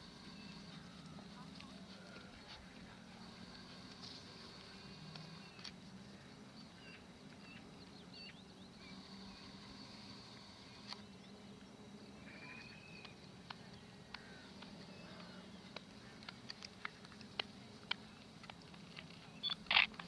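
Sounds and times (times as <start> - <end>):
low steady hum: 0.0 - 20.0
faint clicks: 12.6 - 20.0.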